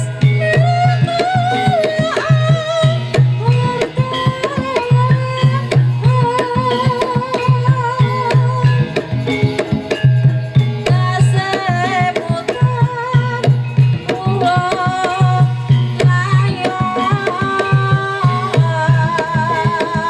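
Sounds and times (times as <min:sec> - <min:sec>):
hand drums fast rhythm: 0:00.0 - 0:20.0.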